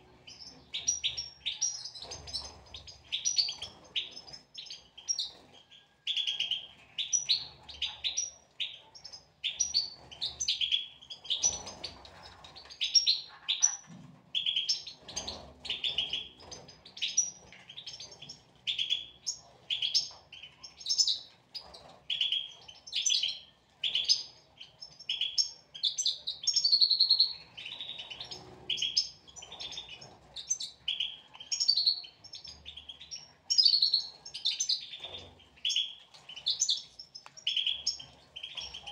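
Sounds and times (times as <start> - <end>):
goldfinches twittering: 0.0 - 5.3, 14.4 - 38.9.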